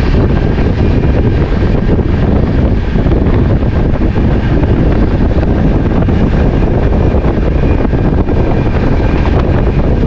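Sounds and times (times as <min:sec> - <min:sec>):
train wind and rail rumble: 0:00.0 - 0:10.0.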